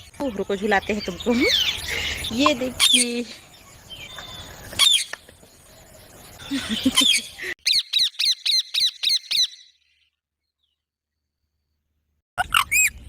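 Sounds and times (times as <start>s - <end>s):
parakeet squawking: 7.0s - 9.7s, 12.4s - 13.0s.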